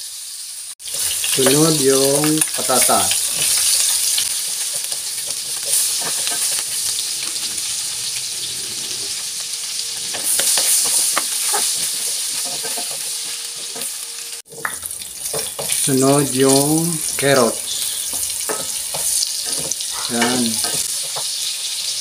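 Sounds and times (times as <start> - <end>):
potatoes sizzling in a pan: 0.0 - 22.0
spatula scraping and knocking pan: 2.5 - 8.1, 9.9 - 13.9, 14.5 - 15.9, 16.5 - 21.5.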